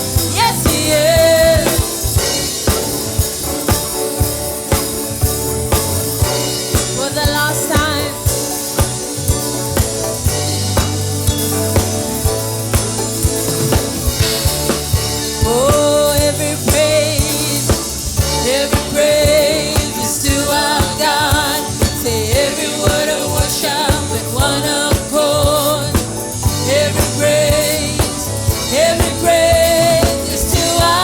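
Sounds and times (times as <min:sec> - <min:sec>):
person singing: 0:00.0 - 0:03.7, 0:06.6 - 0:09.4, 0:15.2 - 0:31.0
gospel band playing: 0:00.0 - 0:31.0.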